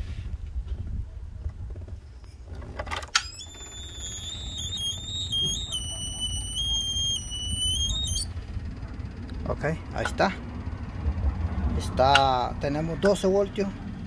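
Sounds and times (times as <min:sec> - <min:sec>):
high electronic alarm tone: 0:03.2 - 0:08.3.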